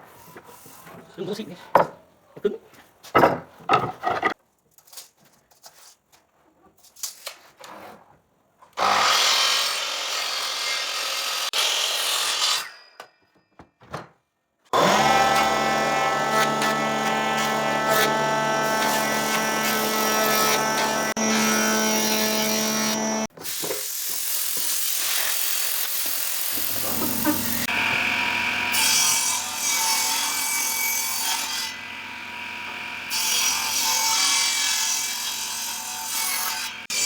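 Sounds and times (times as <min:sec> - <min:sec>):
power tool motor whining hum: 0:14.8 - 0:23.3
noisy cutting or sanding: 0:14.8 - 0:37.0.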